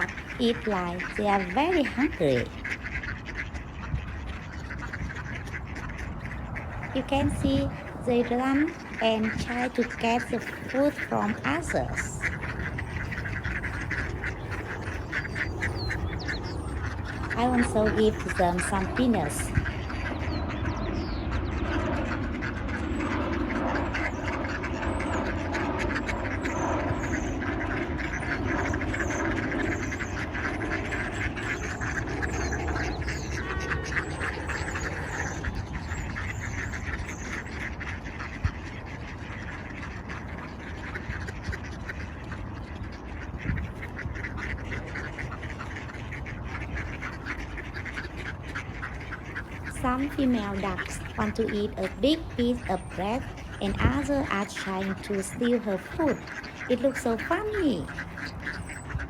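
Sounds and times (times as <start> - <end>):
ducks quacking: 0.0 - 59.0.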